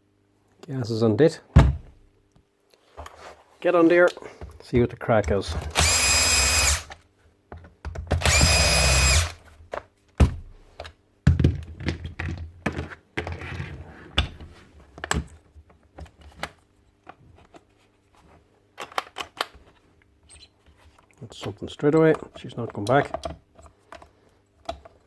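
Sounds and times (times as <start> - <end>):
nail gun fan whine: 5.7 - 7.0, 8.2 - 9.4
tool handling clicks and knocks: 18.8 - 19.8, 20.7 - 25.0.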